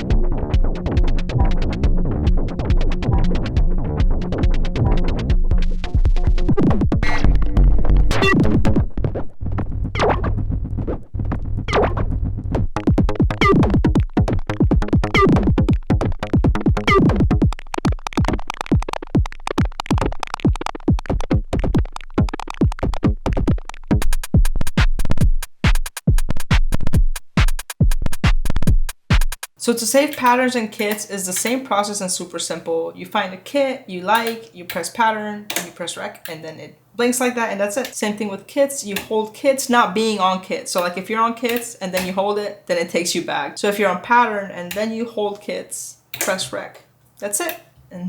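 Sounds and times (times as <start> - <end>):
electronic drum pattern: 0.0 - 9.3, 9.9 - 11.0, 11.6 - 31.5
synth bass tones: 0.0 - 24.4.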